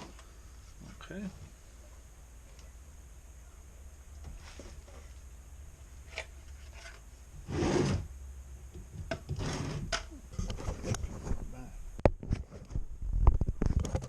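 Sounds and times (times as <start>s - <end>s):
plastic rubbing and scraping: 6.0s - 8.1s, 9.0s - 14.0s.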